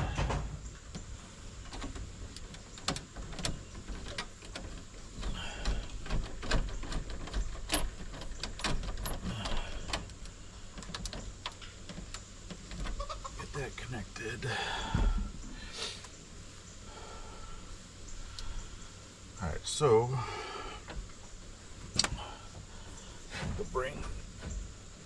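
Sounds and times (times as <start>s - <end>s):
clicks and knocks on electrical panel: 0.0s - 13.0s.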